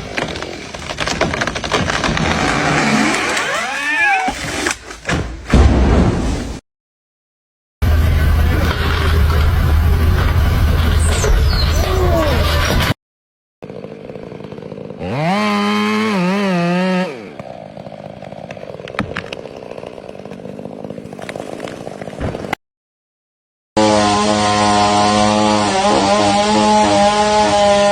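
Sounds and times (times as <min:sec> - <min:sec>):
chainsaw revving: 0:13.6 - 0:21.3, 0:23.8 - 0:27.9.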